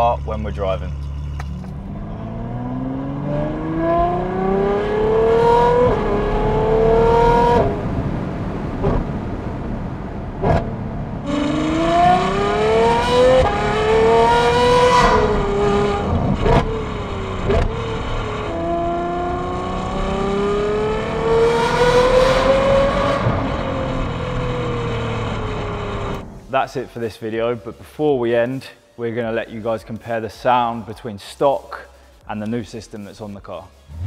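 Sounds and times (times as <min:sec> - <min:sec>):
car engine revving: 0:00.0 - 0:26.4.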